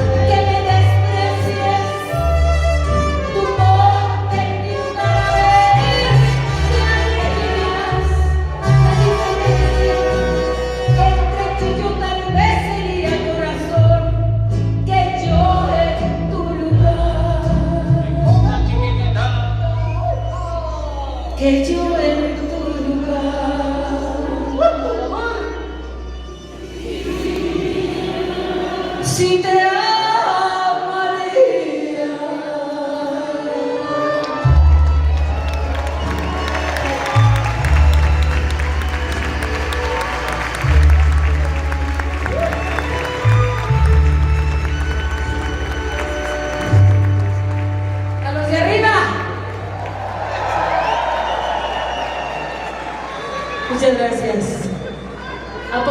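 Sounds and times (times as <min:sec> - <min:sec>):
woman singing: 0:00.0 - 0:18.7, 0:21.4 - 0:25.4, 0:26.9 - 0:35.0
live latin band music: 0:00.0 - 0:31.0, 0:33.3 - 0:50.8
violins: 0:33.3 - 0:50.0.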